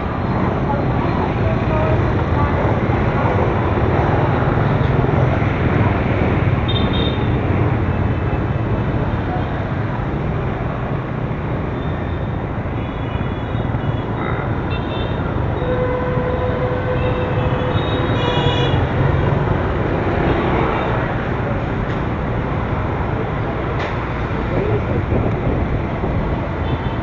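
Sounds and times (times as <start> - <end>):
motorbike engine and wind rumble: 0.0 - 12.8, 18.7 - 27.0.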